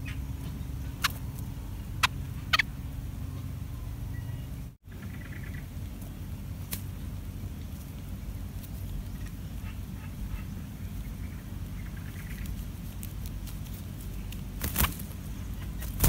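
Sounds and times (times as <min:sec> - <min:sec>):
faint high bird chirps: 0:00.0 - 0:05.8
steady low rumble: 0:00.0 - 0:16.0.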